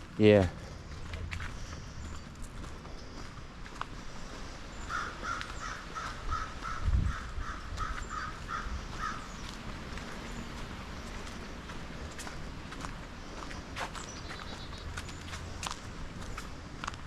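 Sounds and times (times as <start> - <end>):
crow cawing: 4.8 - 9.4
wind rumble on microphone: 5.8 - 11.3.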